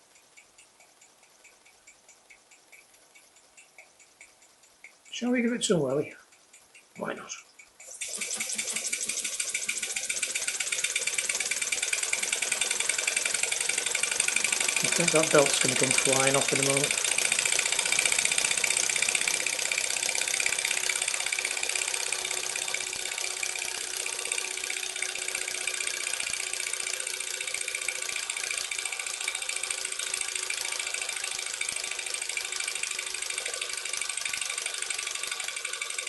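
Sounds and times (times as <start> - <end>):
model steam engine hissing: 7.9 - 36.0.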